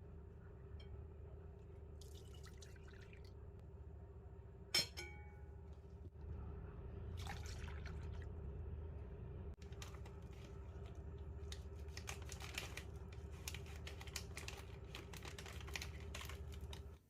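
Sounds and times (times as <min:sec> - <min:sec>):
glass clink: 0:04.8 - 0:05.4.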